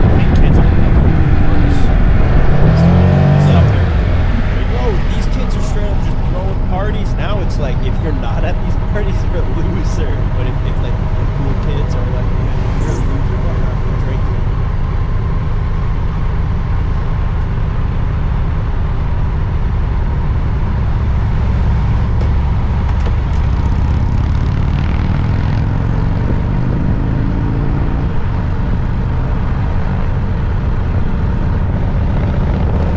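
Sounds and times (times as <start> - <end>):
wind rush: 0.0 - 15.4
motorcycle engine accelerating: 0.0 - 32.9.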